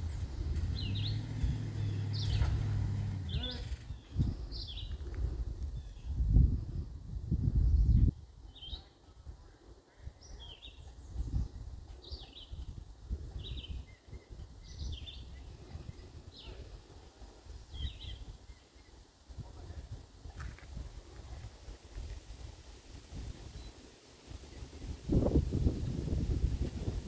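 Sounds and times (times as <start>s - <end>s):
low rumbling noise: 0.0s - 5.6s
songbird chirping: 0.0s - 6.2s, 7.8s - 19.2s.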